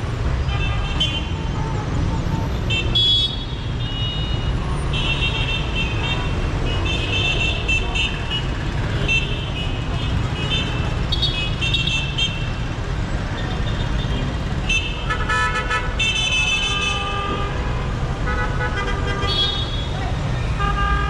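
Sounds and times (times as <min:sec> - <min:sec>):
city street traffic: 0:00.0 - 0:21.0
vehicle horns honking: 0:13.9 - 0:21.0.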